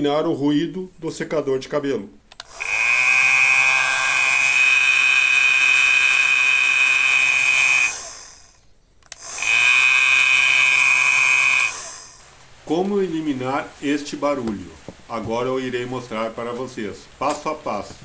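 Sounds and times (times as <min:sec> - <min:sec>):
hair dryer whining: 0:02.4 - 0:08.4, 0:09.1 - 0:12.2.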